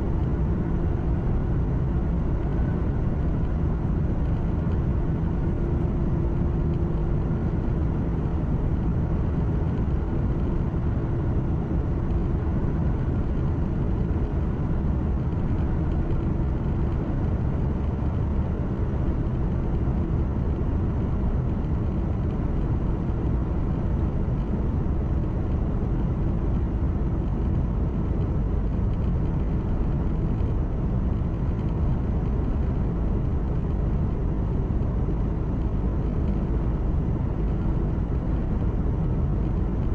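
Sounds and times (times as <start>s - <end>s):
faint steady hum: 0.0s - 39.9s
truck engine and road rumble: 0.0s - 39.9s.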